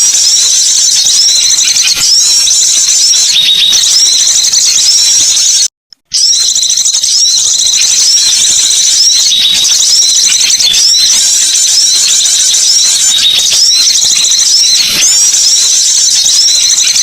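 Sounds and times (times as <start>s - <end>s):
songbirds chattering chorus: 6.3s - 17.0s.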